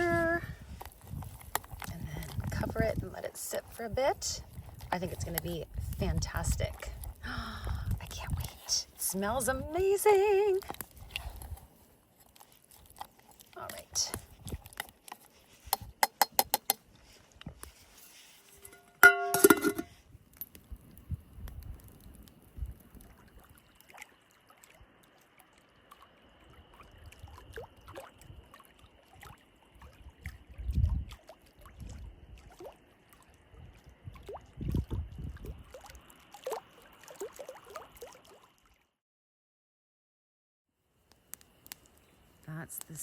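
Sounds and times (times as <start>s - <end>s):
metal pot clink: 18.5s - 19.9s
lake waves lapping at shore: 23.0s - 38.8s.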